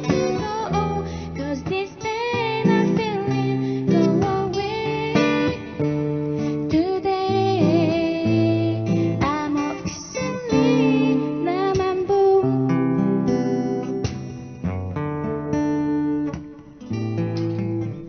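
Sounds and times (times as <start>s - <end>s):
woman singing: 0.0s - 14.2s
acoustic guitar strumming: 0.0s - 18.0s.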